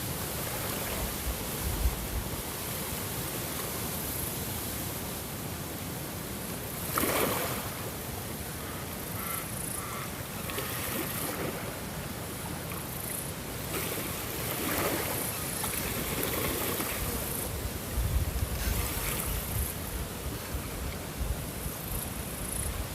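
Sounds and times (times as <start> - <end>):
ocean waves washing in: 9.5 - 22.9.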